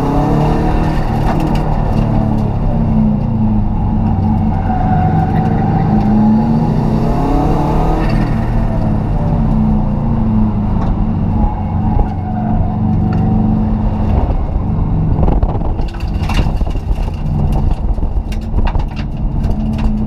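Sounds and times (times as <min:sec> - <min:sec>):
car engine running hard: 0:00.0 - 0:20.0
sharp clicks and knocks: 0:15.3 - 0:20.0.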